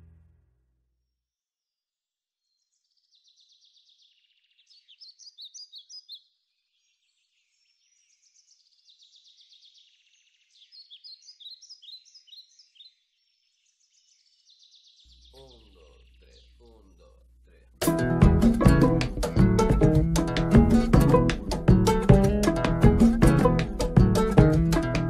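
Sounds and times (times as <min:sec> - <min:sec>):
birds chirping and trilling: 0:02.4 - 0:17.6.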